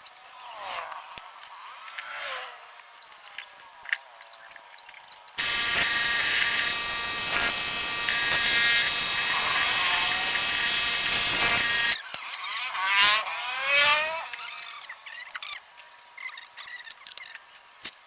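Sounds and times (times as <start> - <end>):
small electric motor buzzing: 5.4 - 14.7.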